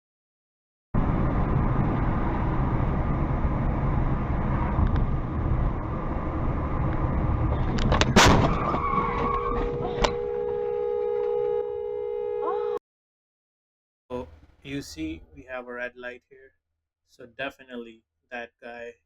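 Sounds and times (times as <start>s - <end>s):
road and engine noise: 1.0s - 12.8s, 14.1s - 15.6s
car collision impact: 7.7s - 11.6s.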